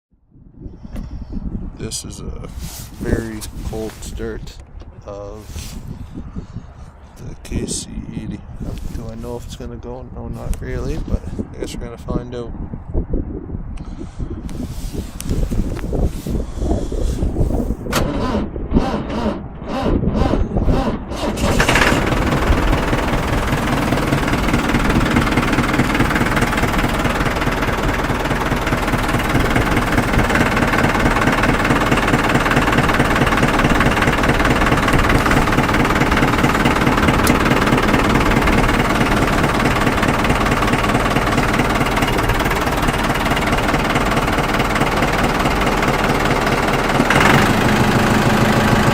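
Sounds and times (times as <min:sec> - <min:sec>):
engine running: 0:14.5 - 0:48.9
engine cranking: 0:17.9 - 0:48.9.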